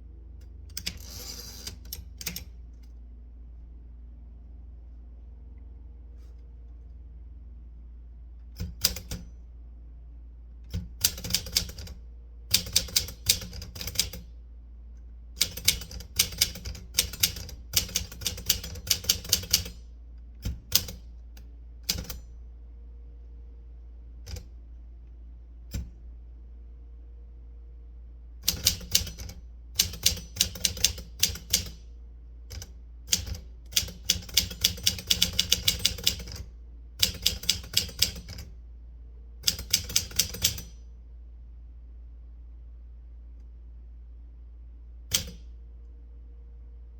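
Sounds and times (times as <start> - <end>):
faint steady hum: 0.0 - 46.9
typewriter keys striking: 10.7 - 11.9, 12.5 - 14.2, 15.4 - 19.8, 28.5 - 29.2, 29.8 - 31.8, 33.1 - 36.4, 37.0 - 38.4, 39.4 - 40.7.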